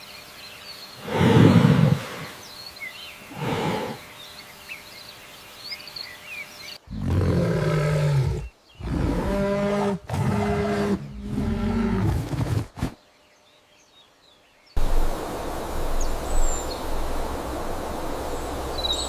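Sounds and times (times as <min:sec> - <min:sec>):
birds chirping faintly: 0:00.0 - 0:12.0, 0:12.8 - 0:19.0
long animal calls: 0:03.3 - 0:04.1
deep animal roars: 0:06.9 - 0:12.6.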